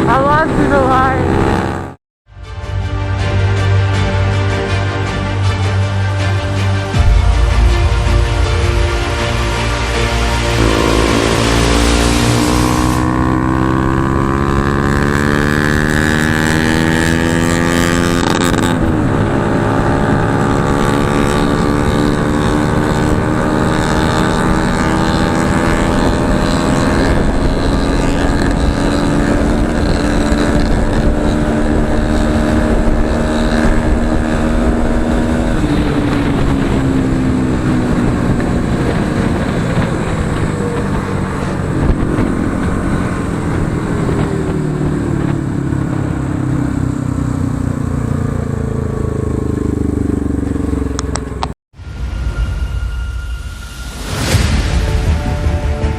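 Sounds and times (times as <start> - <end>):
motorcycle engine accelerating: 0.0 - 2.0, 9.6 - 51.6.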